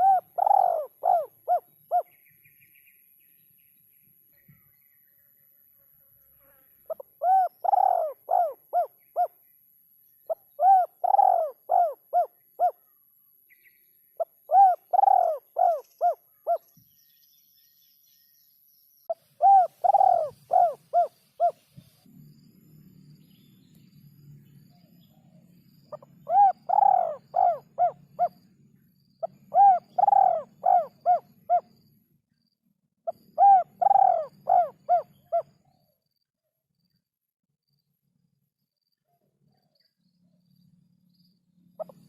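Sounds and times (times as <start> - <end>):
dove cooing: 0.0 - 2.1, 6.9 - 9.3, 10.3 - 12.8, 14.2 - 16.6, 19.1 - 21.6, 25.9 - 28.4, 29.2 - 31.7, 33.1 - 35.5, 41.8 - 42.0.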